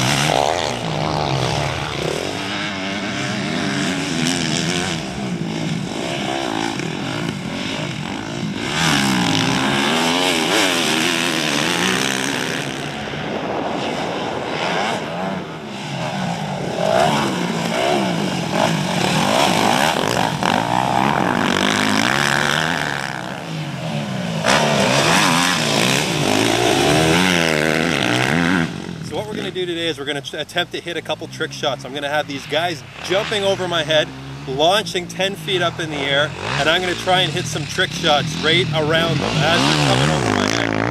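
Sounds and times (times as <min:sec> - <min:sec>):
motocross bike engine revving: 0:00.0 - 0:40.9.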